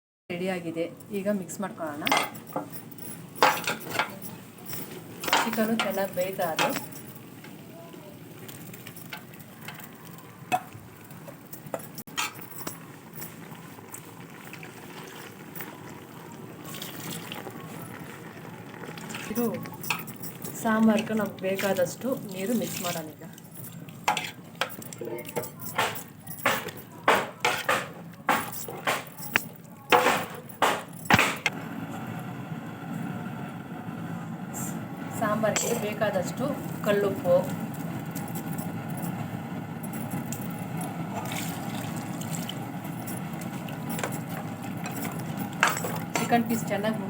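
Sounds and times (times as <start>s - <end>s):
food cooking in pot: 1.1s - 47.0s
metal spoon clinking in pot: 2.0s - 7.6s, 8.4s - 13.6s, 19.0s - 31.3s, 35.5s - 36.1s, 36.8s - 46.9s
spoon scraping in a pot: 24.0s - 24.8s.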